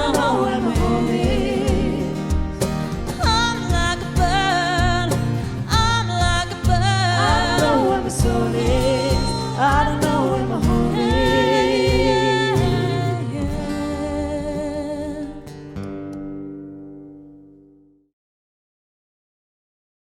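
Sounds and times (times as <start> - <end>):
voices singing in harmony: 0.0 - 3.4, 6.8 - 15.4
cajon beat: 0.0 - 16.2
acoustic guitar: 0.0 - 18.1.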